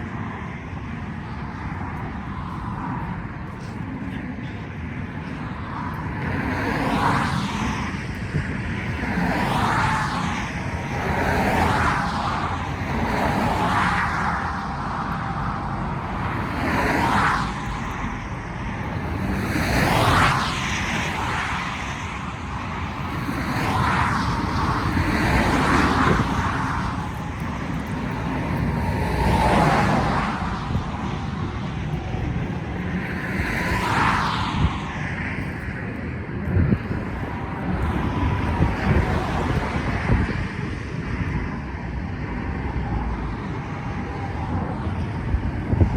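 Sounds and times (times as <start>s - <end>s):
low traffic rumble: 0.0s - 45.9s
vehicles passing: 0.0s - 45.9s.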